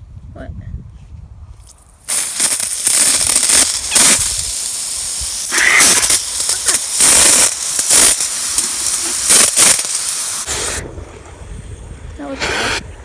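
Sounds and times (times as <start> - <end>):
water spraying from hose: 1.6 - 10.8.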